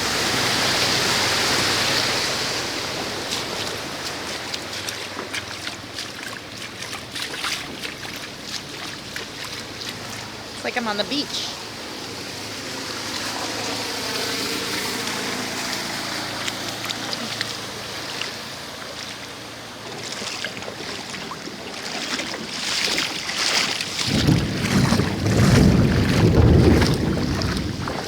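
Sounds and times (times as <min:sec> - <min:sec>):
engine hum: 0:00.0 - 0:28.0
floodwater sloshing and splashing: 0:00.0 - 0:28.0
loud low rumble: 0:24.0 - 0:28.0.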